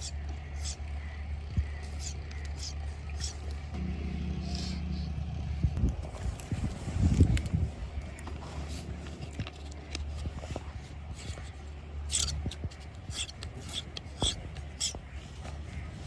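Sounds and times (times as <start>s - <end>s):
short scraping strokes: 0.0s - 0.8s, 1.9s - 3.5s, 8.4s - 10.4s, 11.1s - 15.1s
steady low hum: 0.0s - 16.0s.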